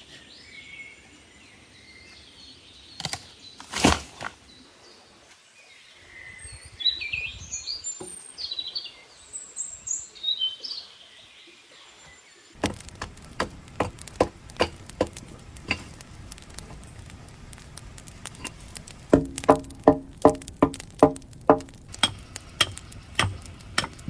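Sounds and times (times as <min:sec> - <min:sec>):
birds chirping: 0:00.0 - 0:24.0
sharp ringing knocks: 0:19.1 - 0:24.0.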